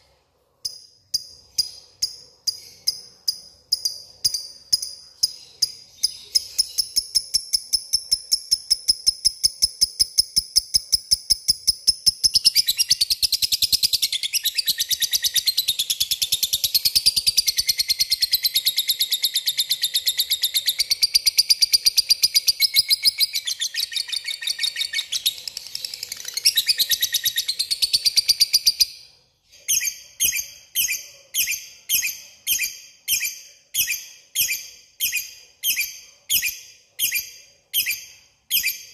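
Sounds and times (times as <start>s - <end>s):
lovebird chirping trill: 0.6s - 29.0s.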